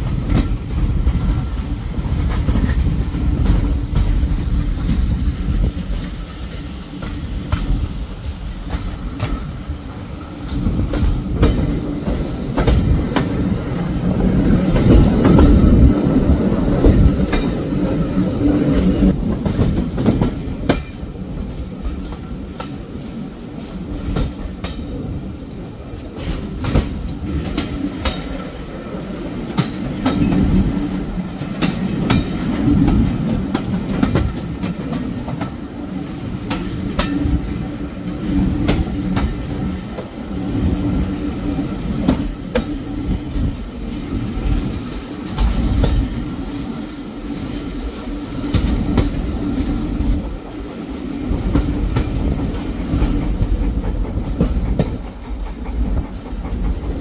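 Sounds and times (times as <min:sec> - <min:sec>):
train rumble and hum: 0:00.0 - 0:57.0
wheels clicking over rail joints: 0:10.5 - 0:25.2, 0:25.8 - 0:50.7, 0:51.3 - 0:57.0.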